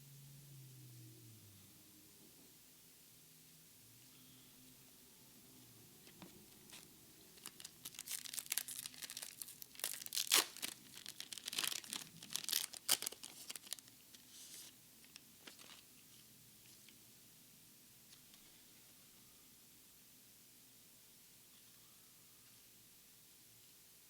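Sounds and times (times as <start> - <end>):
foil wrapper tearing and crinkling: 6.7 - 13.9.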